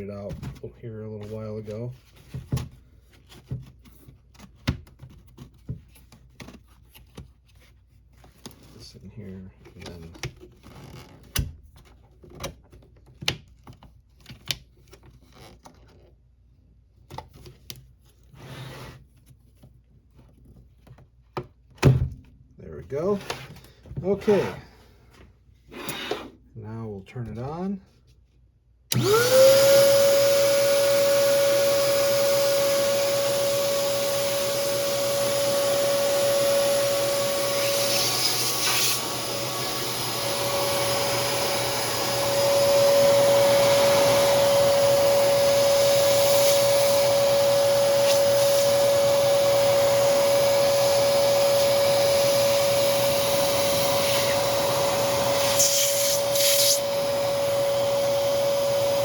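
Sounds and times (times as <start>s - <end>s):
vacuum cleaner running: 28.9s - 59.0s
scratchy bursts of air noise: 50.4s - 57.6s.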